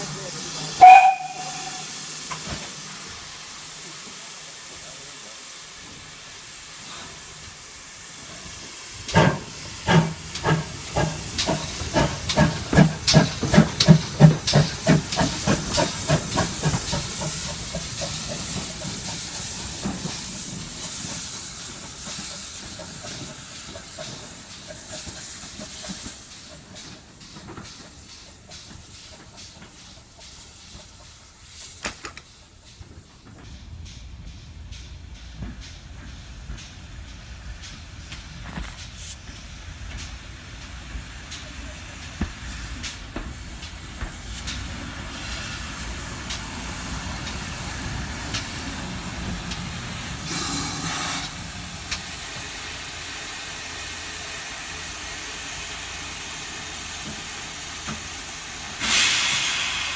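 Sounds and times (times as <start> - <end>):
locomotive exhaust chuffs: 0.0 - 59.9
steam hissing: 0.0 - 59.9
steam locomotive whistle: 0.8 - 2.0, 50.2 - 51.4.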